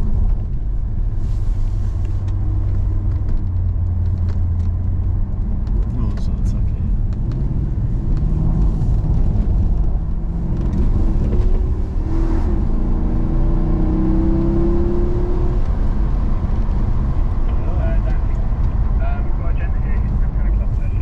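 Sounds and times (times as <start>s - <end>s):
car engine accelerating: 0.0s - 21.0s.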